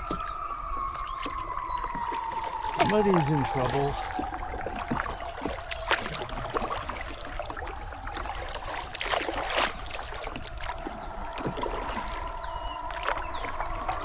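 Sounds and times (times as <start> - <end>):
flowing river water: 0.0 - 14.0
kayak paddle splashing: 0.0 - 14.0
water trickling off paddle: 0.0 - 14.0.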